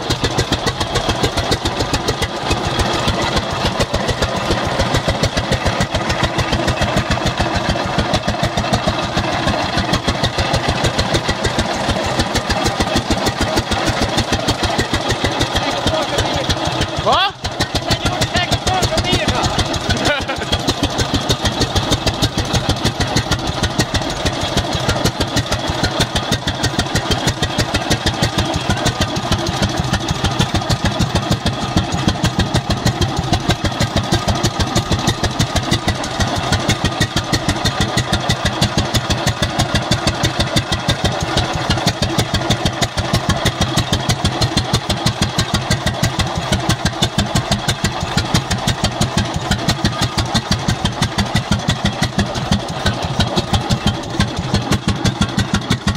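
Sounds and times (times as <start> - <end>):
tractor engine chugging at idle: 0.0 - 55.9.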